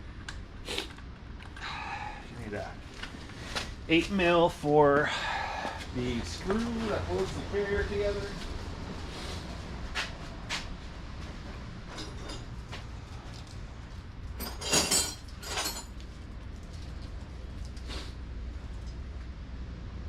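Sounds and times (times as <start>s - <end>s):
low steady hum: 0.0s - 20.0s
metal hand tools clinking: 14.4s - 15.9s.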